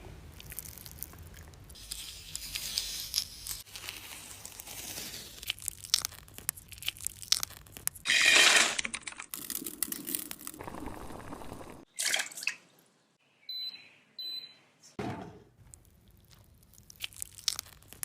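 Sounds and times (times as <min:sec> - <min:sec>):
crinkling and tearing: 0:00.3 - 0:10.9, 0:15.6 - 0:18.0.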